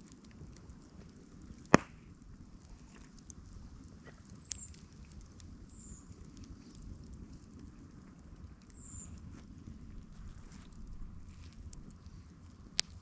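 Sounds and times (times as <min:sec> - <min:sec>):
loud sharp crack: 0:01.7 - 0:02.0
small ticks: 0:04.0 - 0:09.2.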